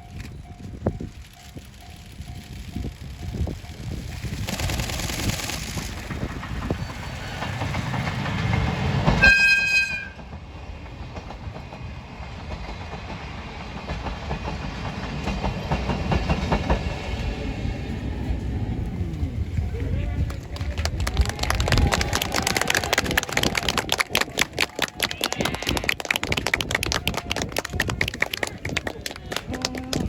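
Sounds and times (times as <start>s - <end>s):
train wheels clacking on rails: 0.0s - 17.9s
train rumble: 0.0s - 30.0s
locomotive horn blast: 9.2s - 10.2s.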